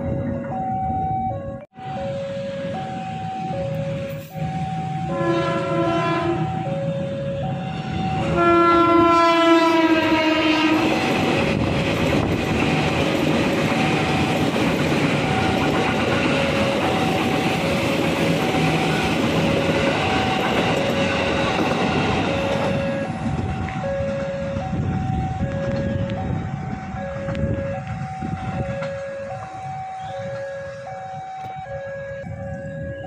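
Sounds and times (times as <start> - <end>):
level-crossing alarm two-tone ringing: 0.0 - 9.7, 10.8 - 33.0
train horn blast: 4.0 - 11.1
train wheels clattering over rail joints: 10.8 - 23.5.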